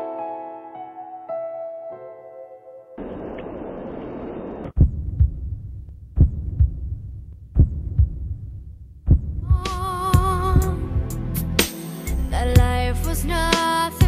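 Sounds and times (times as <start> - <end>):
heartbeat thumps: 4.7 - 11.2.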